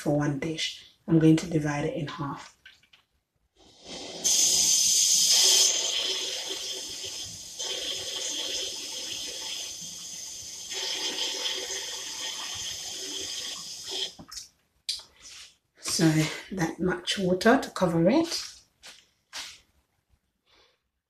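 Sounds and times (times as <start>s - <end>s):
water running into a saucepan: 3.7s - 14.2s.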